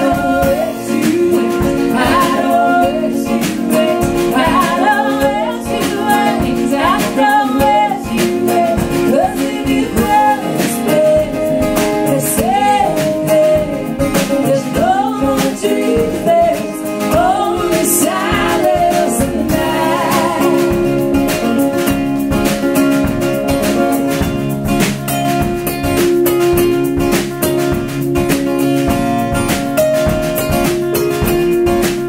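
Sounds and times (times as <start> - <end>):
person singing: 0.0 - 21.1
strummed acoustic guitar: 0.0 - 32.0.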